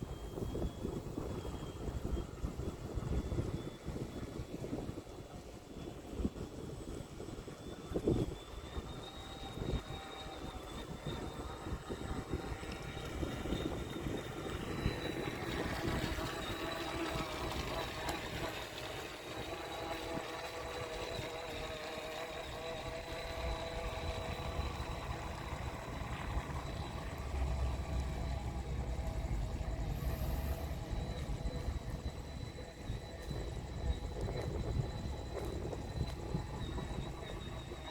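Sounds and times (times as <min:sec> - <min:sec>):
electric motors whining: 0:00.0 - 0:37.9
low rumble: 0:23.8 - 0:37.2.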